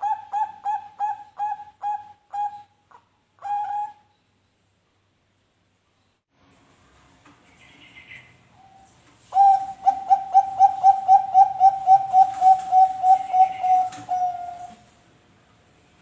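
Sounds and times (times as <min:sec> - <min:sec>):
dove cooing: 0:00.0 - 0:04.0, 0:09.3 - 0:14.9.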